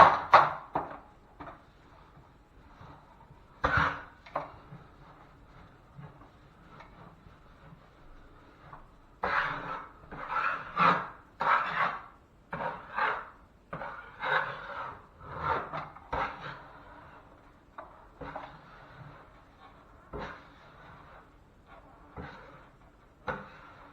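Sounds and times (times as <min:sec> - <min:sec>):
hand tool scraping hard surface: 0:01.4 - 0:23.9.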